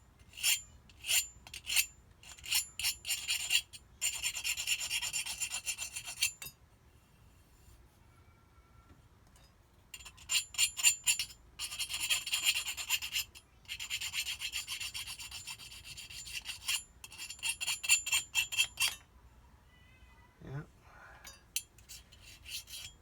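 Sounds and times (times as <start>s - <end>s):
hand file rasping on metal: 0.3s - 6.5s, 10.0s - 19.0s, 21.6s - 23.0s.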